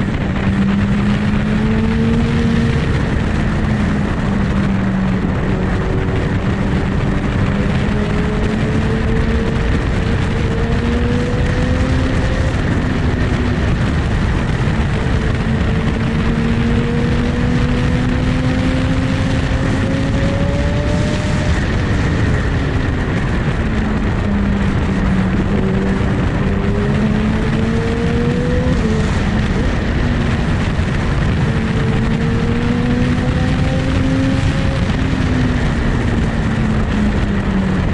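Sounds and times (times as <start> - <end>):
loud rushing noise: 0.0 - 37.9
motorcycle engine revving: 0.0 - 37.9.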